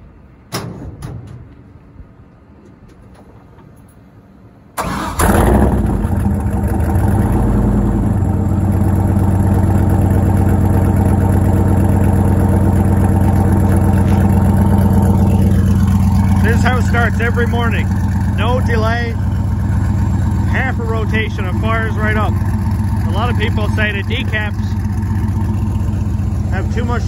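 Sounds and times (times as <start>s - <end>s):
engine cranking and starting: 4.8s - 8.3s, 19.3s - 27.0s
engine idling: 4.8s - 27.0s.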